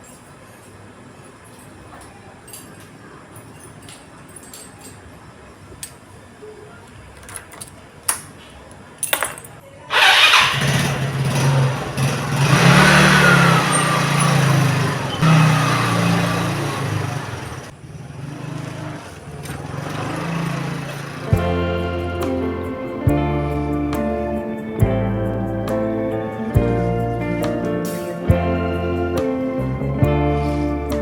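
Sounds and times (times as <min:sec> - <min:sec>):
small engine running loudly: 0:10.2 - 0:21.6.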